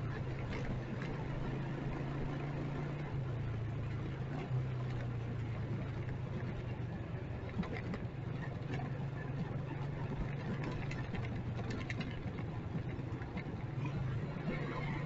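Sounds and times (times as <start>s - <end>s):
motorcycle engine running: 0.0s - 15.0s
street noise: 0.0s - 15.0s.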